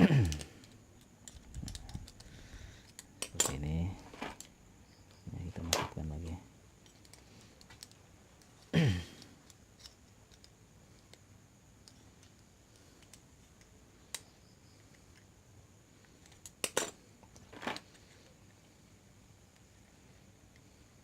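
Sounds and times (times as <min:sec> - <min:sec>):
small metal parts clicking: 0:00.2 - 0:04.5, 0:06.8 - 0:11.2, 0:16.1 - 0:18.0
metal parts clinking: 0:01.2 - 0:04.5.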